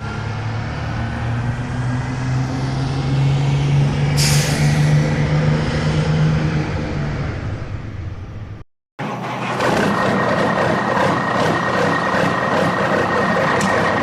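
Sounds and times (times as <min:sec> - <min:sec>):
diesel engine running: 0:00.0 - 0:14.0
sharp air hiss: 0:04.2 - 0:05.1.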